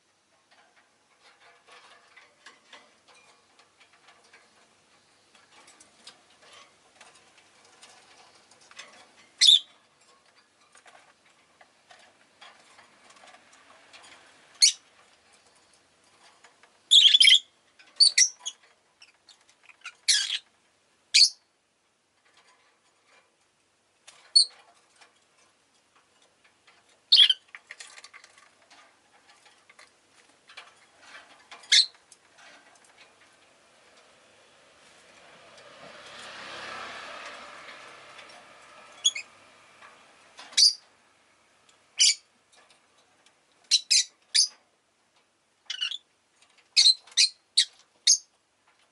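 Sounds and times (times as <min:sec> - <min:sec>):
lovebirds shrill calls: 0:09.4 - 0:09.7, 0:14.6 - 0:14.8, 0:16.9 - 0:18.6, 0:19.8 - 0:20.4, 0:21.2 - 0:21.4, 0:27.1 - 0:27.4, 0:31.7 - 0:32.0, 0:39.0 - 0:39.3, 0:40.5 - 0:40.8, 0:42.0 - 0:42.2, 0:43.7 - 0:44.5, 0:45.7 - 0:46.0, 0:46.8 - 0:48.3.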